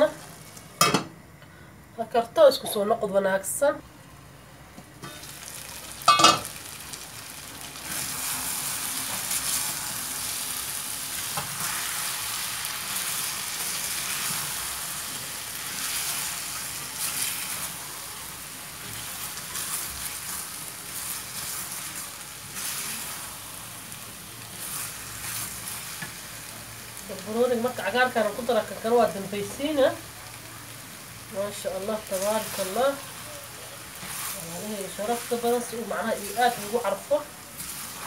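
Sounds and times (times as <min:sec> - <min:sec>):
curry sizzling in a pan: 0:00.0 - 0:01.1, 0:04.8 - 0:38.0
pan lid clanking: 0:06.1 - 0:06.5.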